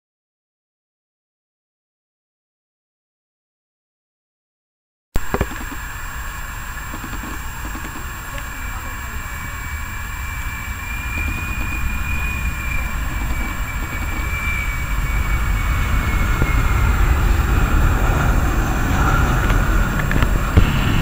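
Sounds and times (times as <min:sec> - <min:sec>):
jet engine high whine: 0:05.2 - 0:21.0
jet engines low rumble: 0:05.2 - 0:21.0.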